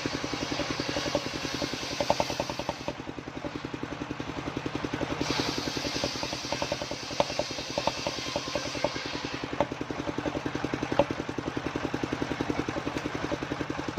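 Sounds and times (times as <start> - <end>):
saw blade hissing through wood: 0.0 - 2.8, 5.2 - 9.5
circular saw engine thudding: 0.0 - 13.9
sharp knocks: 0.4 - 3.6, 5.3 - 11.2.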